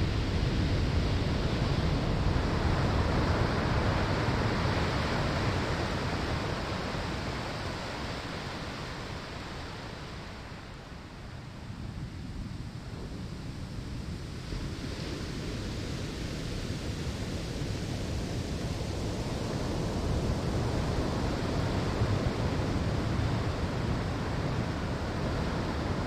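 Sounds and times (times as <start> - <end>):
ocean waves on sandy shore: 14.5 - 26.0.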